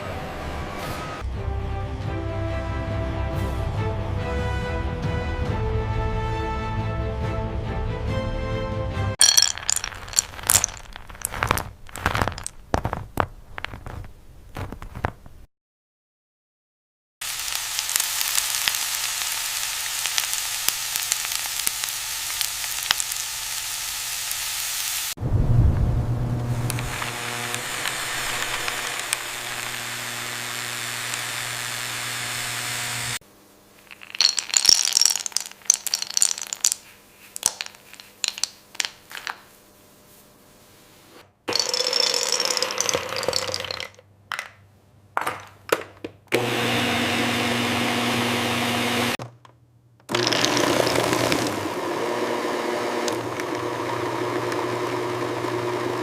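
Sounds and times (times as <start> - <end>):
machinery humming: 18.9 - 33.2.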